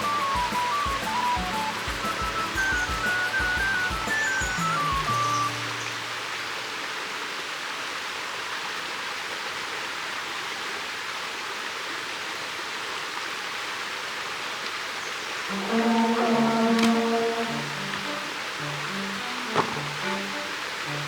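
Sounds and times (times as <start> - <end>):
background music: 0.0 - 6.1, 15.5 - 21.0
running water rushing: 0.0 - 21.0.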